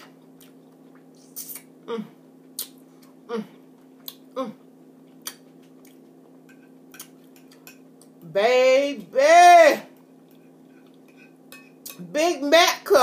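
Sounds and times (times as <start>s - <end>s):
steady low hum: 0.0s - 13.0s
mouth smacks while chewing: 2.6s - 3.1s.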